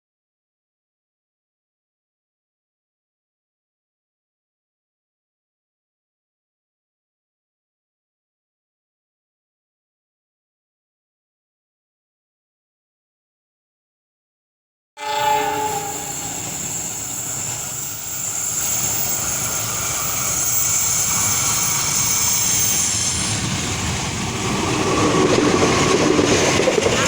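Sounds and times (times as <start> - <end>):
train horn: 15.0 - 17.2
train rumbling: 15.0 - 27.0
wheels clattering on rails: 16.4 - 27.0.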